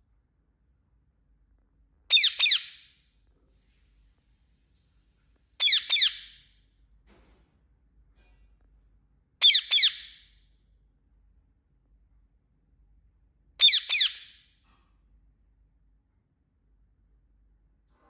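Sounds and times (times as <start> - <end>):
parrot chirping: 2.1 - 2.9, 5.6 - 6.4, 9.4 - 10.2, 13.6 - 14.4.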